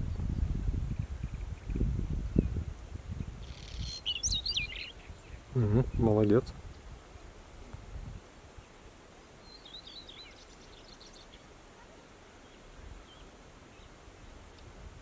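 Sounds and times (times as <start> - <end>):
bird singing: 3.4 - 6.1, 9.4 - 11.5, 12.4 - 14.4.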